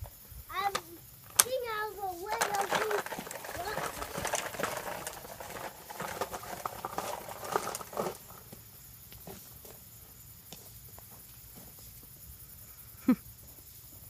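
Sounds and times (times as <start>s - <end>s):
toy trucks scraping through dirt: 0.7s - 8.6s.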